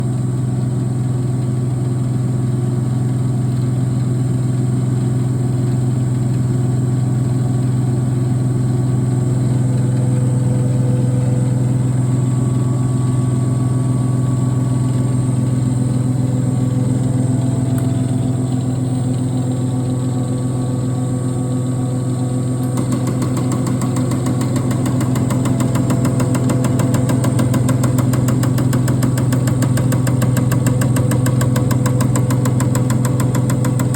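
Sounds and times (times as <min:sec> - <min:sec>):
steady machine hum: 0:00.0 - 0:33.9
rapid even ticking: 0:22.6 - 0:33.9.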